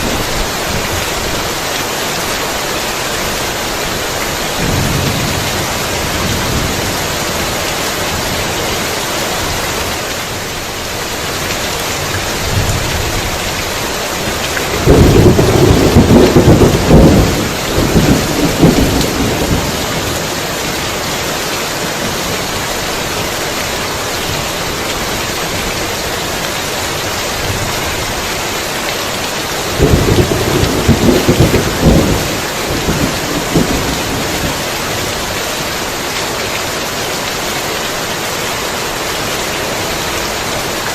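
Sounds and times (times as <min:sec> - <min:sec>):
heavy rain: 0:00.0 - 0:40.9
thunder rumbling: 0:03.7 - 0:09.6, 0:14.2 - 0:20.8, 0:29.6 - 0:34.8.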